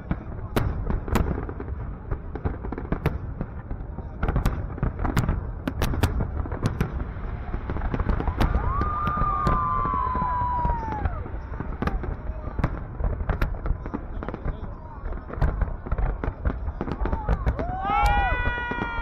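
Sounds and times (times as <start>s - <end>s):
fireworks bangs: 0.0s - 19.0s
firework whistling tone: 7.2s - 12.1s.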